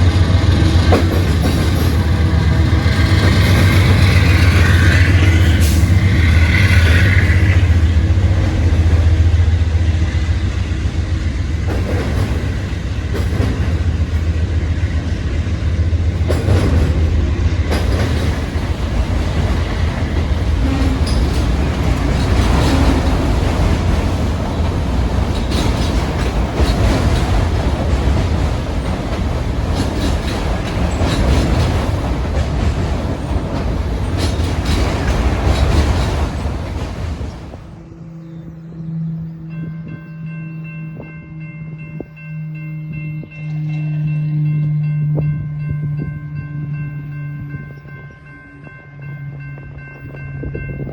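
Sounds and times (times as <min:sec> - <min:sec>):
train wheels clacking on rails: 0:00.0 - 0:37.8
train engine rumble: 0:00.0 - 0:50.9.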